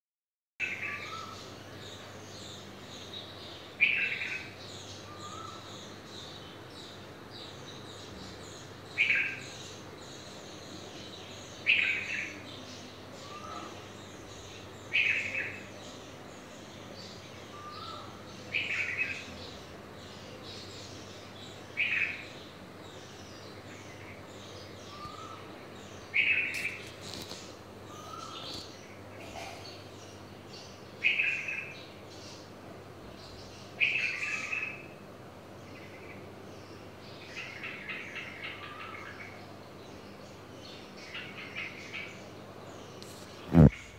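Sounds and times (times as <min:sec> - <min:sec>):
small bird chirping: 0:00.6 - 0:35.0, 0:35.6 - 0:43.9.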